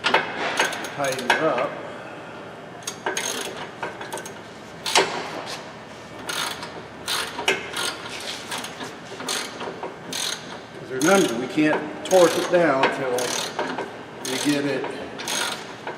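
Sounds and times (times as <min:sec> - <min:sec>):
hand ratchet clicking: 0:02.8 - 0:05.0, 0:06.3 - 0:11.4, 0:12.1 - 0:12.6, 0:13.2 - 0:15.9.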